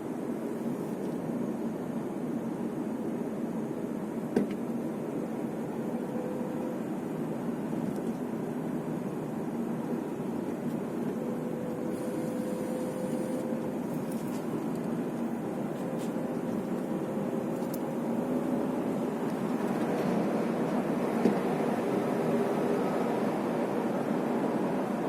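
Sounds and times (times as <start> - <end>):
car engine and tyre hum: 0.0 - 25.0
faint steady tone: 4.8 - 19.2.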